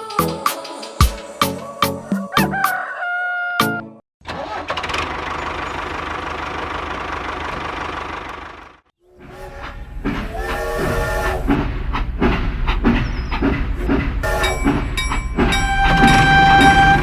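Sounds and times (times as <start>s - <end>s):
mini train chugging: 9.6s - 17.0s
train horn: 10.4s - 11.5s, 14.2s - 14.8s, 15.5s - 17.0s.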